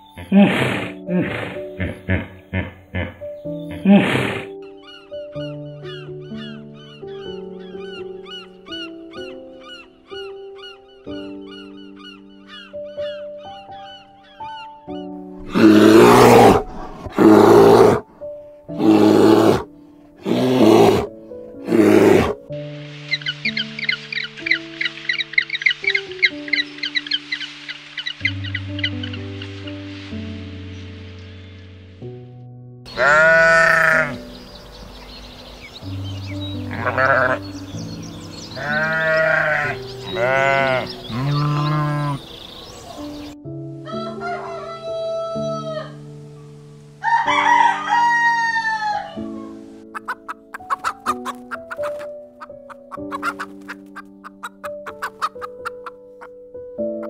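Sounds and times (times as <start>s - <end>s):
soft background music: 0.0s - 57.0s
wavering bleats: 0.2s - 4.5s, 15.4s - 18.1s, 18.7s - 22.4s, 32.9s - 34.2s, 36.6s - 37.6s, 38.5s - 42.3s
large mammal rasping cry: 15.4s - 18.1s, 18.8s - 22.4s, 32.9s - 34.2s, 36.7s - 37.4s, 38.6s - 42.3s.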